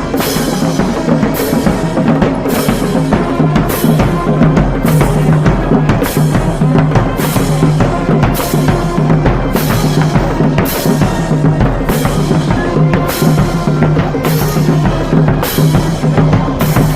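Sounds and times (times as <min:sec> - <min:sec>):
cymbal crashes: 0:00.0 - 0:16.9
marching band playing: 0:00.0 - 0:16.9.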